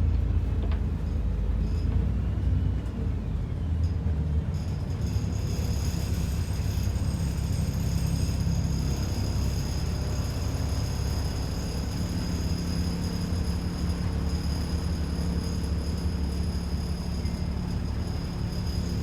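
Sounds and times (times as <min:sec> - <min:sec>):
thin high whine: 0:04.8 - 0:19.0.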